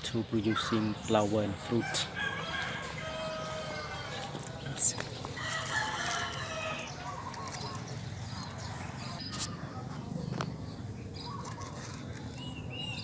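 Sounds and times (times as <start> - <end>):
birds chirping: 0.0 - 13.0
rooster crowing: 1.8 - 4.3, 5.4 - 7.2.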